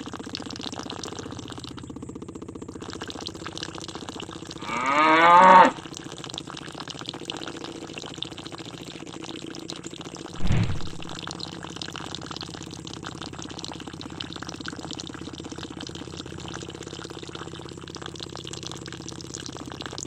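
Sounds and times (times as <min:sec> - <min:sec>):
water splashing and trickling: 0:10.4 - 0:11.2.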